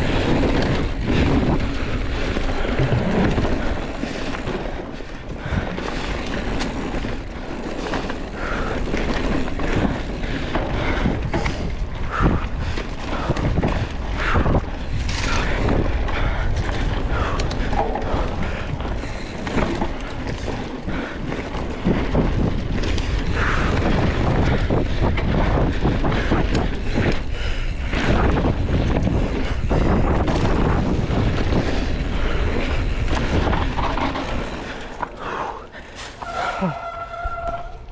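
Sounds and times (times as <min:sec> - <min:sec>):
wind buffeting microphone: 0:00.0 - 0:37.9
knocks and crackles: 0:00.5 - 0:10.7.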